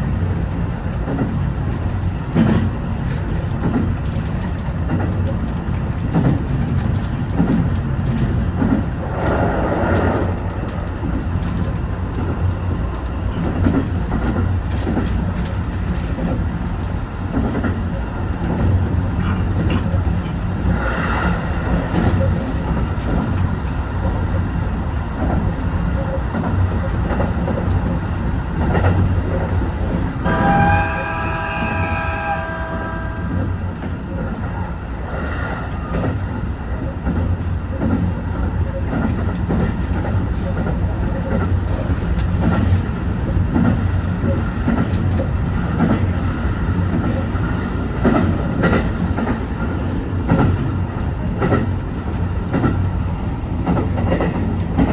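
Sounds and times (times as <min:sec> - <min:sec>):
train rumble with rail clatter: 0:00.0 - 0:54.9
train horn: 0:30.2 - 0:33.8.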